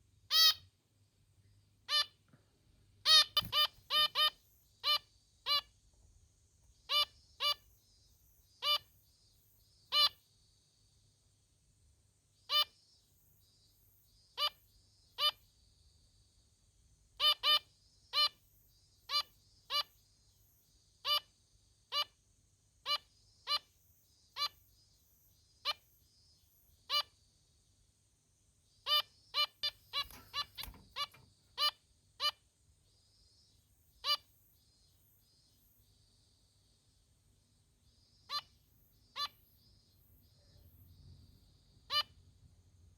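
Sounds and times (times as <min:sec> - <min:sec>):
finch nasal meep calls: 0:00.3 - 0:00.6.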